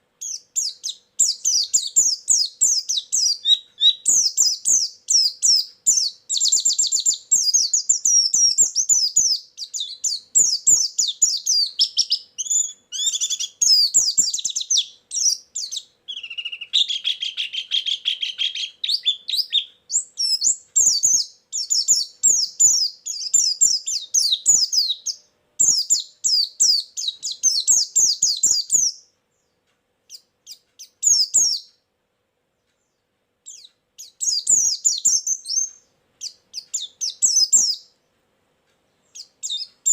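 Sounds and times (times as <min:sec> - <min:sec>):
bird singing high twittering trills: 0:00.2 - 0:31.8, 0:33.4 - 0:38.0, 0:39.1 - 0:39.9.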